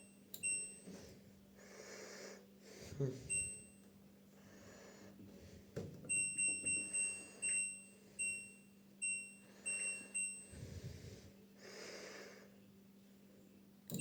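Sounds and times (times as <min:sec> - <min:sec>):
washing machine beeps: 0:00.0 - 0:01.2, 0:03.2 - 0:04.0, 0:06.1 - 0:10.8
breath noise: 0:09.4 - 0:12.6.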